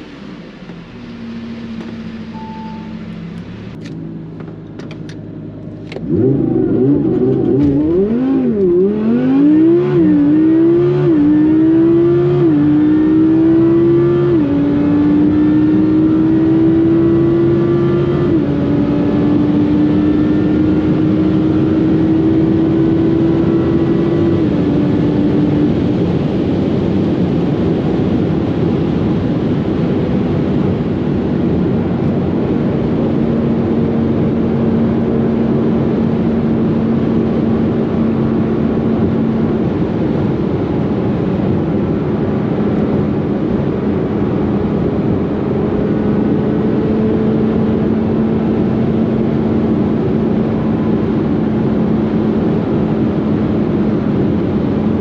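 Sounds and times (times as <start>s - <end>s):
car engine accelerating: 0.0s - 55.0s
wind and road noise: 0.0s - 55.0s.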